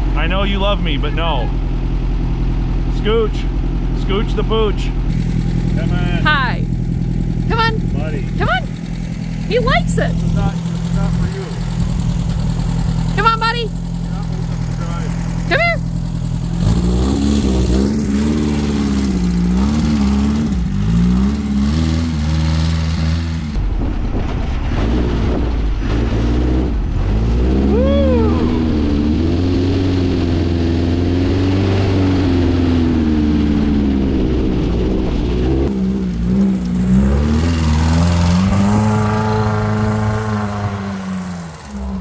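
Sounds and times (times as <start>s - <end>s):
air-cooled engine running: 0.0s - 23.0s
high-pitched cry: 27.7s - 28.7s.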